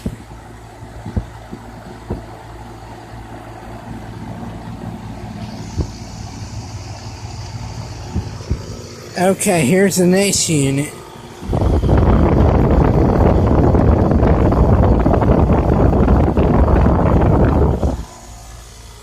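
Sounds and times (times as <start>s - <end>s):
heat pump mechanical hum: 0.0s - 19.0s
sharp knocks: 1.0s - 2.3s, 8.1s - 8.8s
high hiss: 4.9s - 12.0s.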